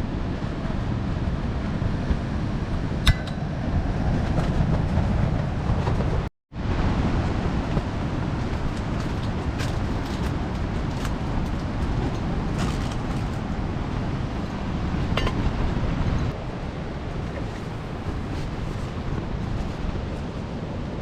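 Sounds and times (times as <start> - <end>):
strong wind on microphone: 0.0 - 21.0.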